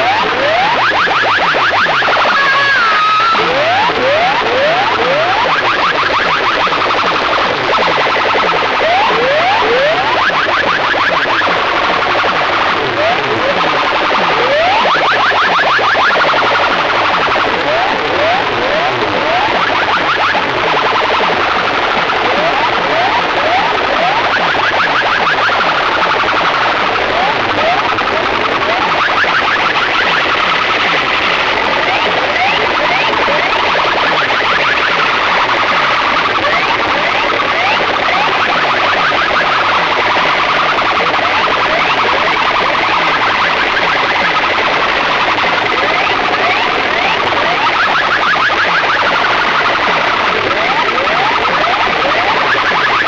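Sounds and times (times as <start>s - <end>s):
fast upward chirps: 0.0s - 26.3s
electronic siren sweeps over pa: 0.0s - 53.0s.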